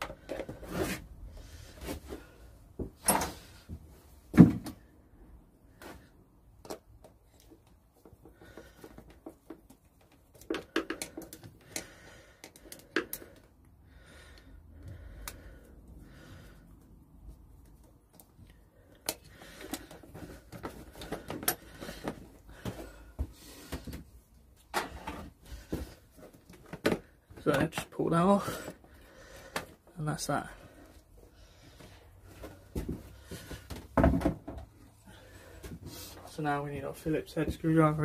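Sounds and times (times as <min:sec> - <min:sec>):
hand tools clicking and knocking: 0:06.6 - 0:13.7, 0:18.9 - 0:23.0.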